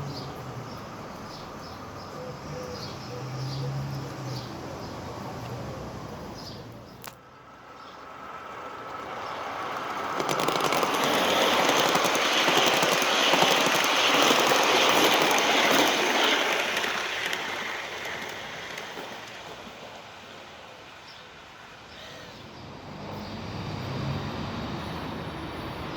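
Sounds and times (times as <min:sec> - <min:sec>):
model train wheels clattering: 0:08.8 - 0:20.2.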